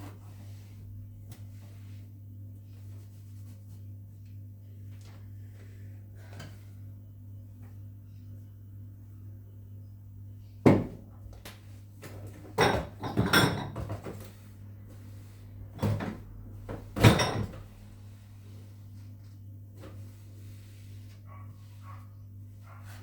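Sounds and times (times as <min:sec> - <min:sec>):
steady low hum: 0:00.0 - 0:23.0
household knocks and clatter: 0:12.1 - 0:14.3, 0:15.8 - 0:17.6.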